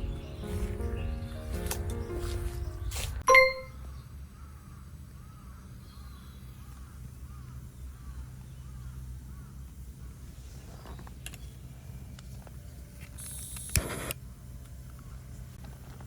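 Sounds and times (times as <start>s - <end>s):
background music: 0.0s - 3.8s
bright ding: 3.2s - 3.8s.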